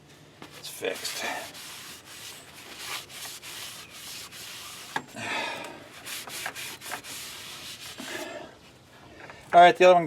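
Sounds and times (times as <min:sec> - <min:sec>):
rubbing and scraping: 0:00.4 - 0:05.2, 0:05.9 - 0:08.5.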